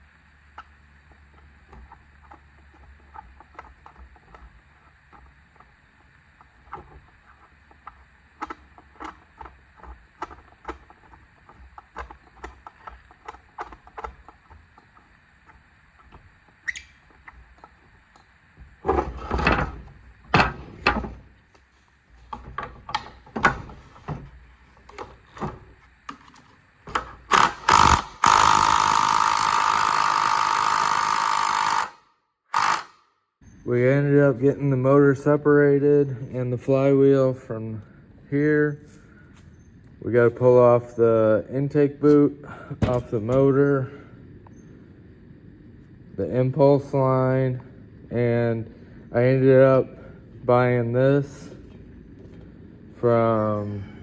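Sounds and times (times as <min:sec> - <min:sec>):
power tool running: 0:00.0 - 0:33.0.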